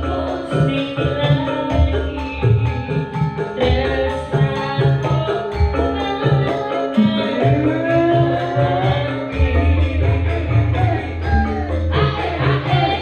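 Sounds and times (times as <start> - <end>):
hand drum strokes: 0.0 - 13.0
pitched melody lines: 0.0 - 13.0
sliding vocal-like melody: 3.5 - 13.0.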